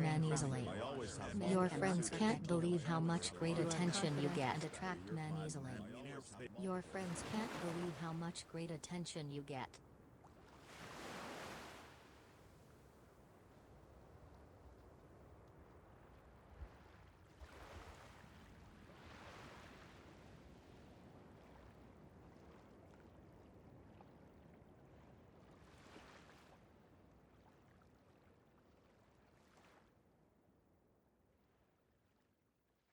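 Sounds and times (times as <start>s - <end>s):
faint rushing water: 0.0s - 9.6s.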